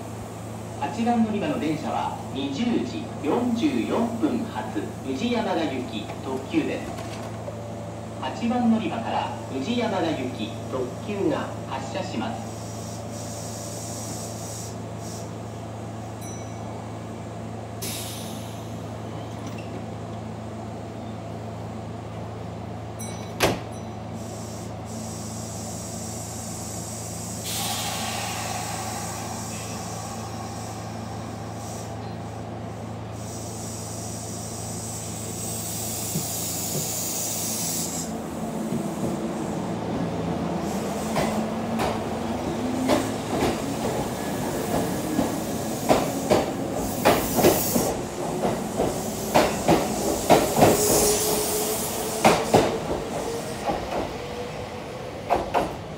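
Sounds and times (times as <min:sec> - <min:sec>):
steady train hum: 0:00.0 - 0:55.9
air hiss: 0:12.4 - 0:15.5, 0:17.8 - 0:18.9, 0:24.2 - 0:39.7, 0:40.6 - 0:42.0, 0:43.0 - 0:52.8.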